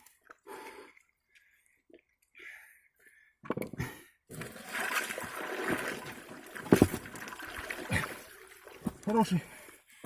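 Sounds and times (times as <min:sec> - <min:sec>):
water sloshing and splashing: 0:04.3 - 0:09.4.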